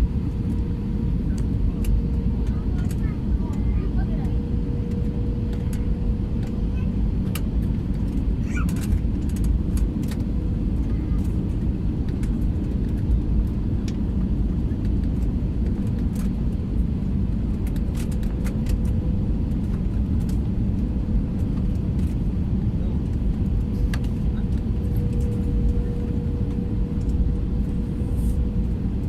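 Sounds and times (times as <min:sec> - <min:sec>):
airliner cabin rumble: 0:00.0 - 0:29.0
faint steady hum: 0:22.8 - 0:29.0.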